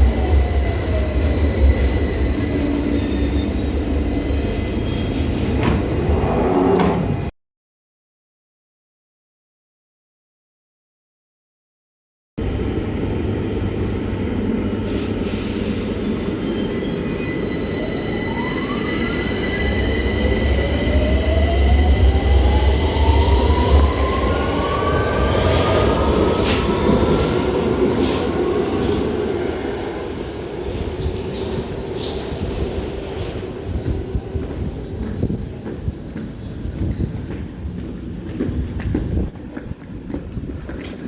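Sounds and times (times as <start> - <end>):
electric train accelerating: 12.4 - 35.6.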